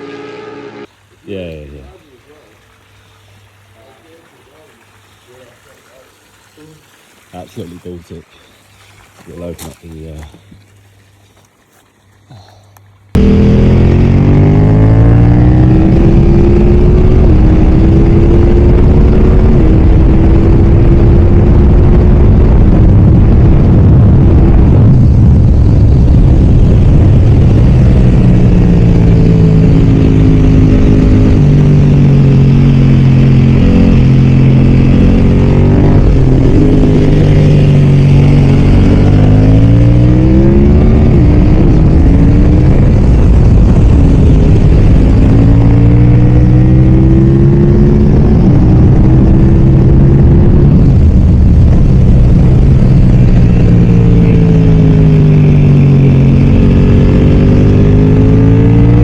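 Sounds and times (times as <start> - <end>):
motorcycle engine revving at speed: 13.1 - 59.0.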